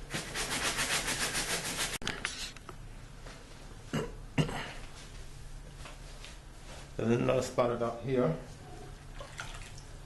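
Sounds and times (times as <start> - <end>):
brush scrubbing wet fabric: 0.0 - 2.0.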